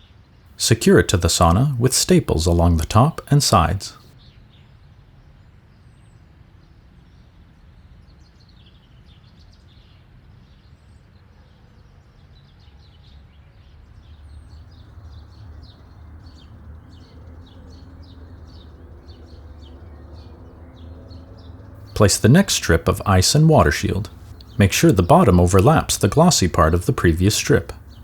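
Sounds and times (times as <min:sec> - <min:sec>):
small birds chirping: 0:00.6 - 0:04.1, 0:14.0 - 0:28.0.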